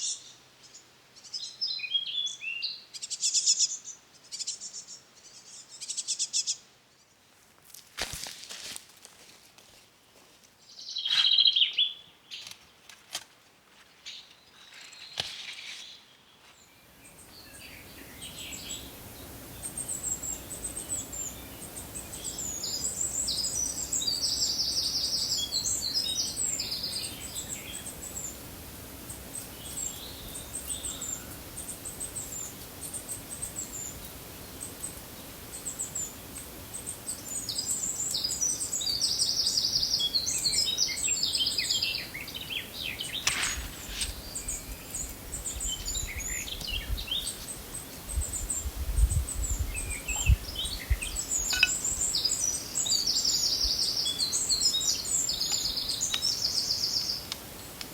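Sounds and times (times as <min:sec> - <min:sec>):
birds chirping: 0:14.0 - 0:57.8.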